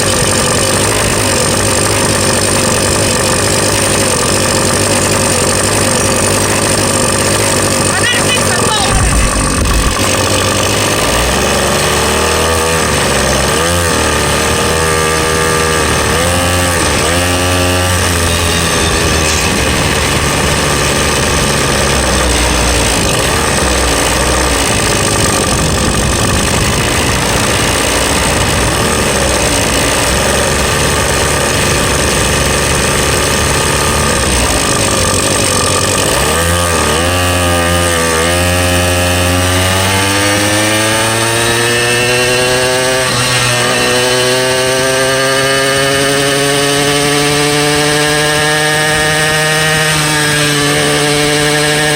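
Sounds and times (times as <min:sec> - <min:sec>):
small gasoline engine revving: 0:00.0 - 0:51.9.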